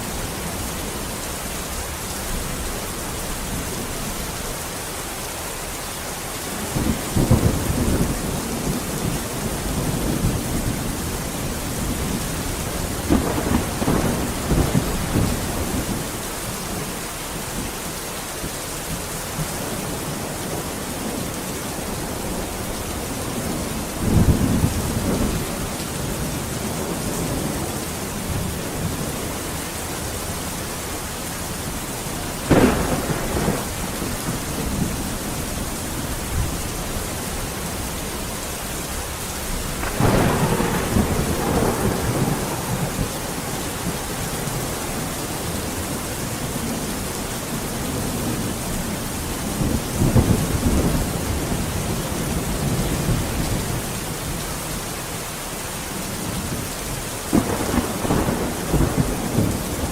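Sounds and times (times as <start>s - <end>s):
steady rain falling: 0.0s - 59.9s
thunder cracking and rumbling: 6.6s - 16.8s, 19.4s - 30.1s, 31.7s - 47.0s, 47.8s - 54.4s, 57.2s - 59.9s.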